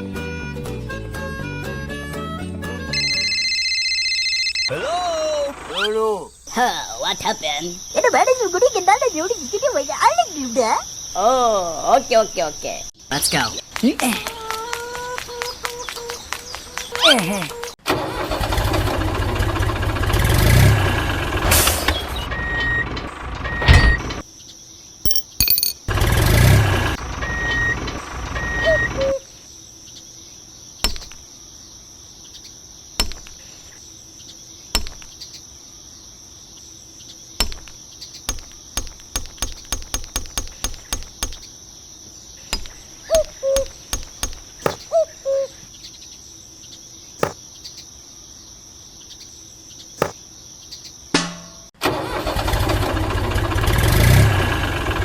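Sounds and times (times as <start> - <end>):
sharp clicks: 38.3 - 41.5, 43.2 - 44.8.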